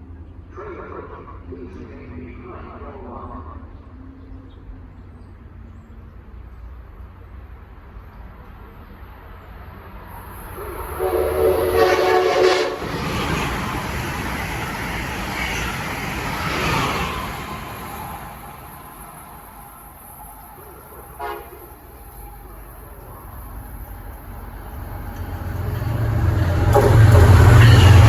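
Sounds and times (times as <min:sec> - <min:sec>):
train wheels rumbling on rail: 0:06.3 - 0:28.0
train horn blast: 0:10.5 - 0:13.2, 0:21.1 - 0:21.9, 0:26.3 - 0:28.0.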